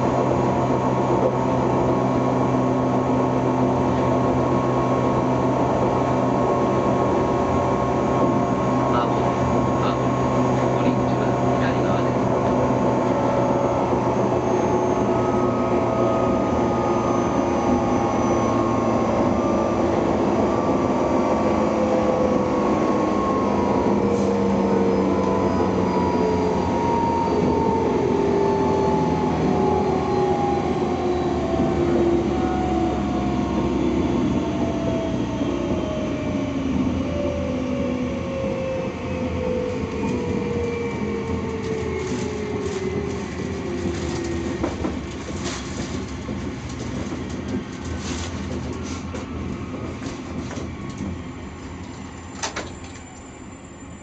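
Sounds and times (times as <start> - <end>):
electric train rumbling: 0.0 - 54.0.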